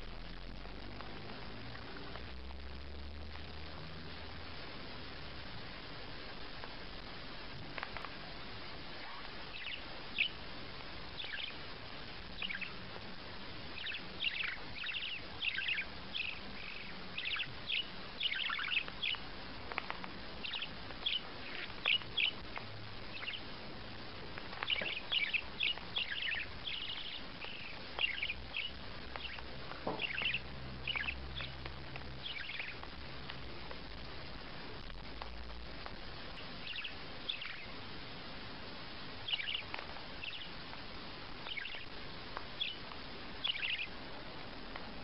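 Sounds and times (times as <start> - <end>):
small bird chirping: 7.7 - 37.9, 39.2 - 44.0.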